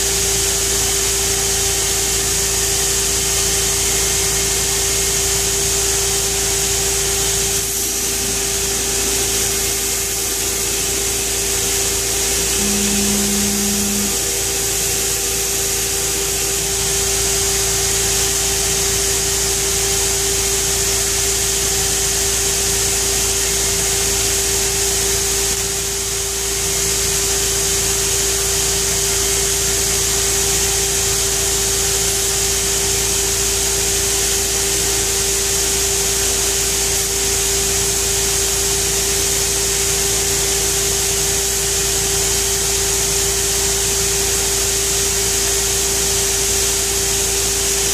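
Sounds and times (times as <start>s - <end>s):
belt grinder motor whine: 6.2s - 19.3s
abrasive belt hissing: 6.4s - 18.7s.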